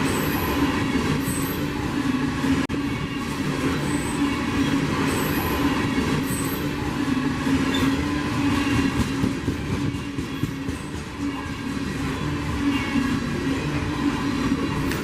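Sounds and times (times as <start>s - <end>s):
high-pitched wheel squeals: 0.0s - 1.8s, 2.8s - 15.0s
train wheels rumbling on rail: 0.0s - 15.0s.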